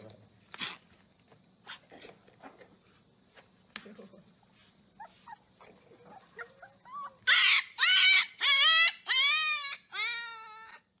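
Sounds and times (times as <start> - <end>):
puppy whining: 5.0 - 11.0.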